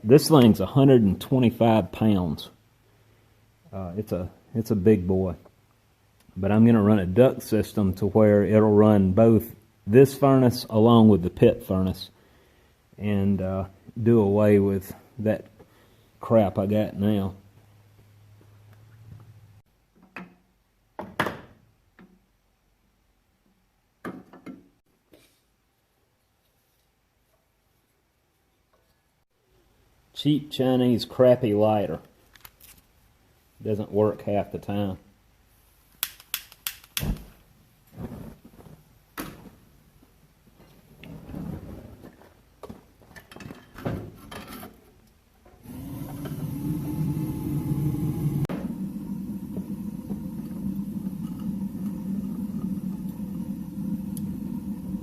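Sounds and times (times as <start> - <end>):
low hum: 45.6 - 55.0.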